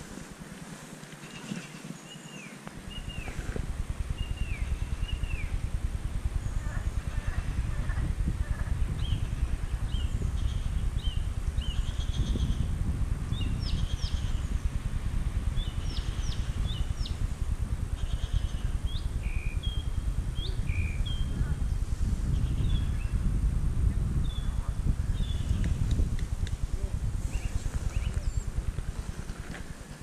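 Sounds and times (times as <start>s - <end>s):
songbirds chirping: 0.0s - 23.3s, 24.1s - 30.0s
low rumble: 2.7s - 30.0s.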